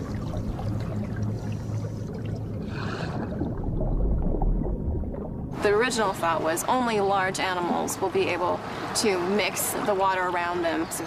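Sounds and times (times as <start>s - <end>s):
deep rumble: 0.0s - 6.6s
low steady hum: 0.0s - 11.0s
water sloshing and trickling: 0.0s - 11.0s.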